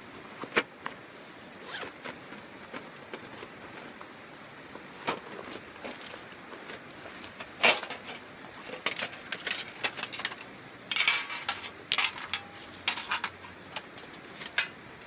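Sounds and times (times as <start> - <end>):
scraping rustle: 0.2 - 4.2, 4.8 - 14.8
metal cooking gear clinking: 7.6 - 14.8.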